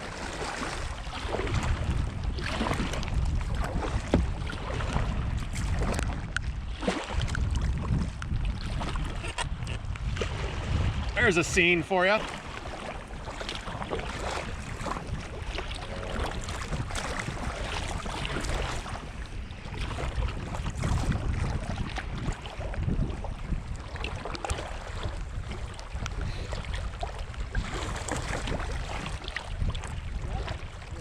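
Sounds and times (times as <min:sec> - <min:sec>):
river water rushing and splashing: 0:00.0 - 0:07.4, 0:10.1 - 0:22.8
wind rumbling on microphone: 0:00.0 - 0:31.0.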